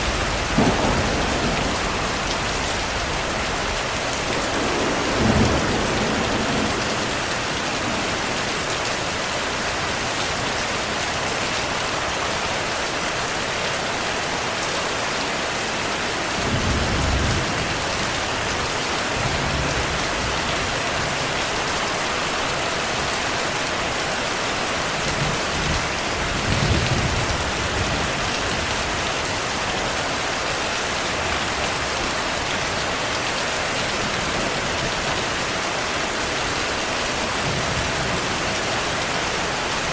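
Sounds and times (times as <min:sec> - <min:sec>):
distant thunder rolling: 0:00.0 - 0:08.5
heavy rain hissing: 0:00.0 - 0:39.9.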